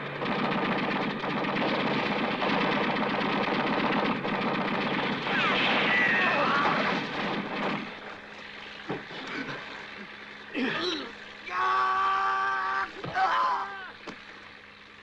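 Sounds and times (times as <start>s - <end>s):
machine-gun fire: 0.0s - 8.2s.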